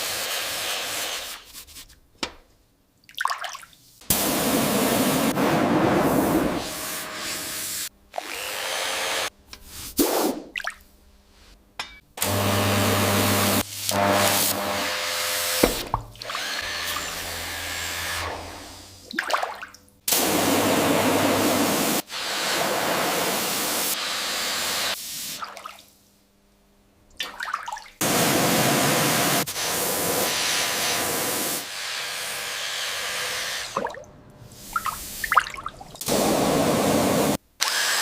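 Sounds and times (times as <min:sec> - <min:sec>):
small power tool running: 0:08.2 - 0:09.3, 0:12.2 - 0:18.7.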